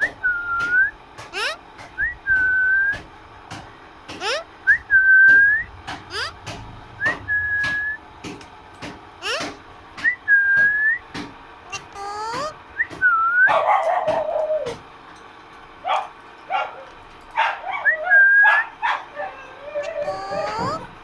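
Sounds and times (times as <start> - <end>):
parrot whistling: 17.8 - 18.6, 19.8 - 20.9.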